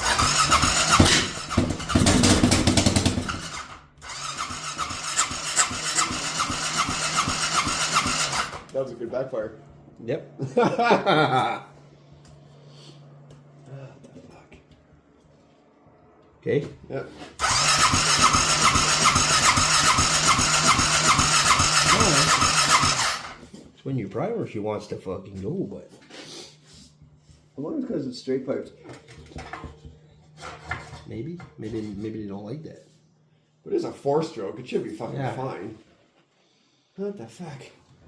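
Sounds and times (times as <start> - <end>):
atv engine cranking and firing: 0.0 - 8.8, 17.4 - 23.4.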